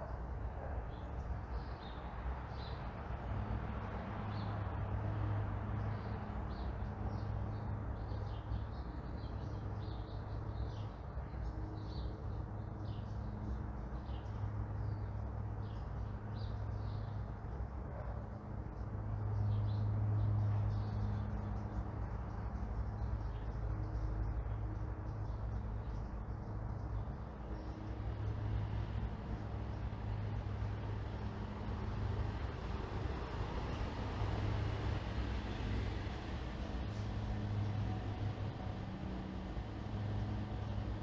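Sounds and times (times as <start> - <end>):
distant traffic rumble: 0.0 - 41.0
songbirds chirping: 0.0 - 41.0
vehicle approaching: 27.8 - 41.0.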